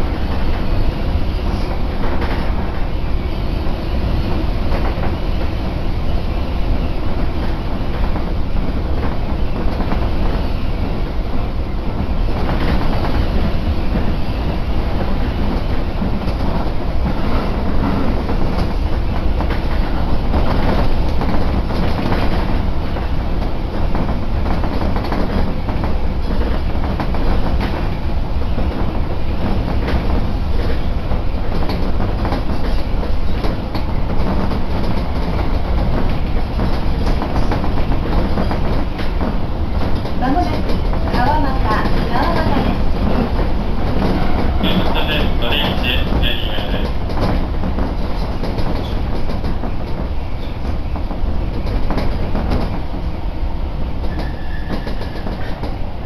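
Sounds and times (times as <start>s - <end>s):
train wheels rumbling on rails: 0.0s - 56.0s
track clicks and knocks: 28.6s - 52.9s.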